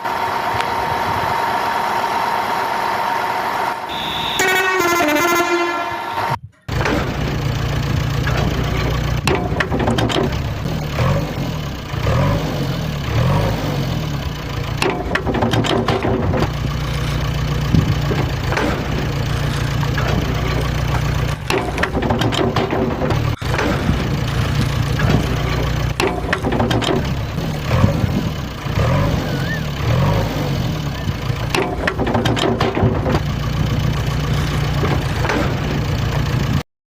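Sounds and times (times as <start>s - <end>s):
tractor engine idling: 0.0s - 36.6s.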